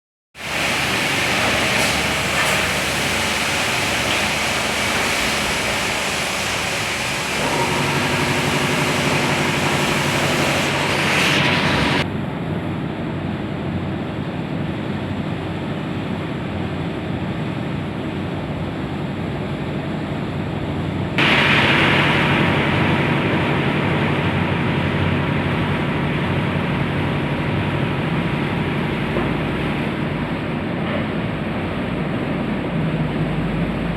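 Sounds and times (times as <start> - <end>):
water spray hissing: 0.4 - 12.0
steady motor hum: 0.4 - 33.9.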